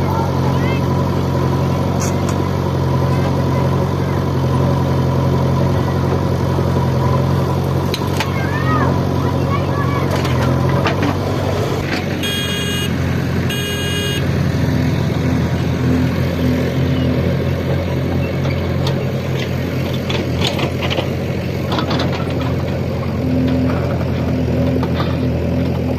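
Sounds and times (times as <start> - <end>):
heavy machine engine running: 0.0 - 25.9
short horn beeps: 12.2 - 14.3.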